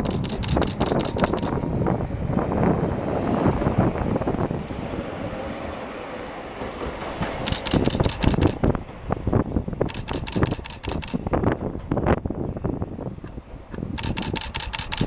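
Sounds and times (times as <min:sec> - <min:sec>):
wheels clacking over rail joints: 0:00.0 - 0:02.1, 0:05.6 - 0:09.2, 0:09.8 - 0:11.3, 0:13.7 - 0:15.0
streetcar rumbling along track: 0:00.0 - 0:15.0.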